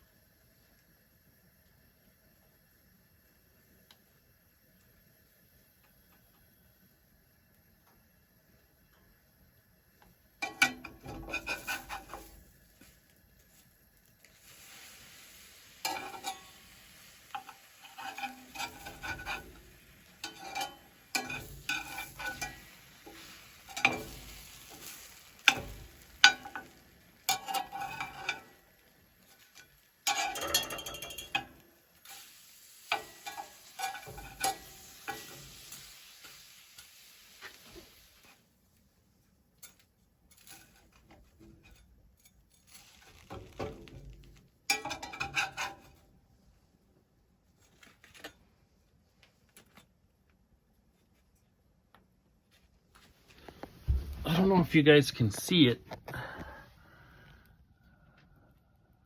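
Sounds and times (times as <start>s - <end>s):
food sizzling in a frying pan: 0.0s - 46.0s
utensil scraping a pan: 10.4s - 13.7s, 14.3s - 38.4s, 39.6s - 46.1s.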